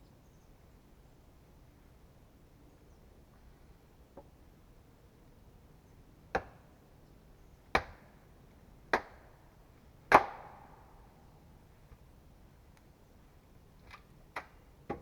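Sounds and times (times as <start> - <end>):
axe striking wood: 10.1 - 10.6.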